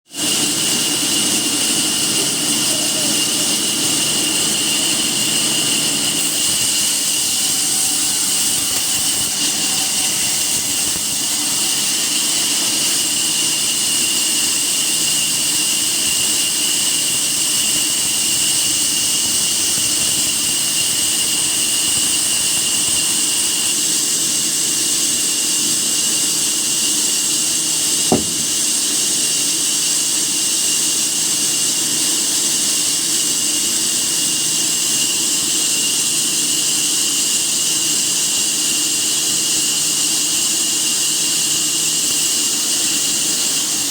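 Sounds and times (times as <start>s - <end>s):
woodworking machine whining: 0.2s - 23.6s, 28.1s - 28.9s
sharp click: 28.1s - 28.6s.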